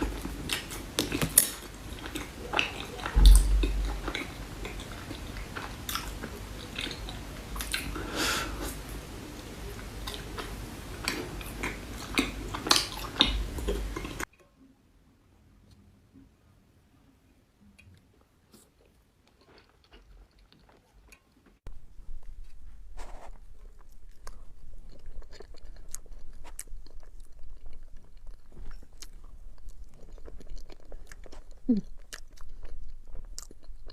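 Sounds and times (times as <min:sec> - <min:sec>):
chewing: 0:00.0 - 0:14.3, 0:17.8 - 0:33.9
heavy low thump: 0:03.2 - 0:04.1.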